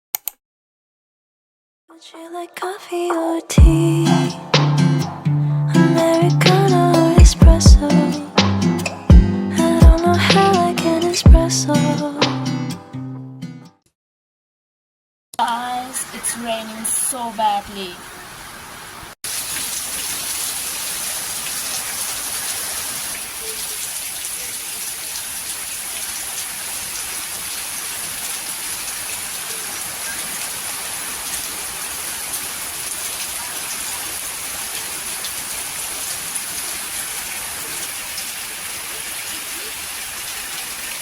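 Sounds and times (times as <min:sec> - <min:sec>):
heavy rain falling: 0:15.9 - 0:41.0.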